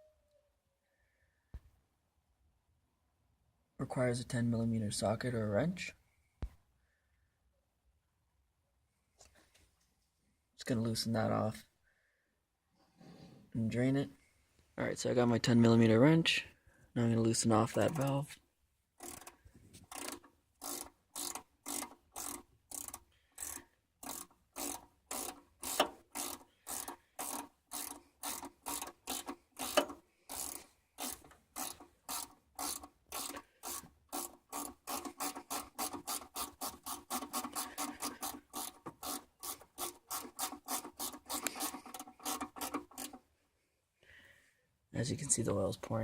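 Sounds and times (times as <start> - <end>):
ratchet wrench rasping: 17.5 - 18.2, 19.0 - 43.2.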